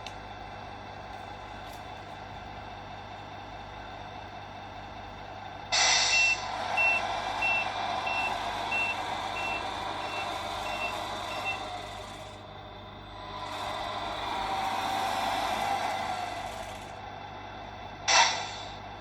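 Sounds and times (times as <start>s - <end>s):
simulated truck engine: 0.0s - 19.0s
air brake hiss: 5.7s - 8.8s, 18.1s - 18.9s
reversing beeper: 6.0s - 11.7s.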